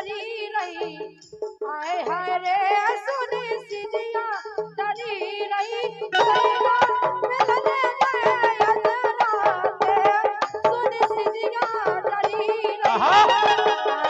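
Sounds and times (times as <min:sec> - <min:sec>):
wavering folk melody: 0:04.0 - 0:14.0
hand drum strokes: 0:06.2 - 0:13.0.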